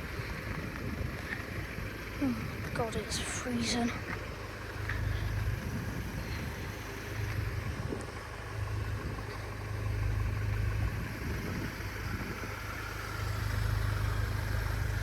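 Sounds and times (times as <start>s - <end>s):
wind buffeting microphone: 0.0s - 4.3s, 4.9s - 9.4s, 10.5s - 12.8s.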